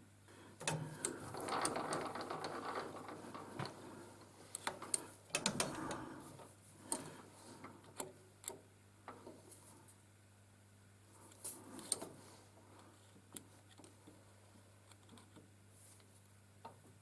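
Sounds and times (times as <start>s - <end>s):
faint steady hum: 0.0s - 17.0s
metal lathe parts clicking and rattling: 0.6s - 3.8s.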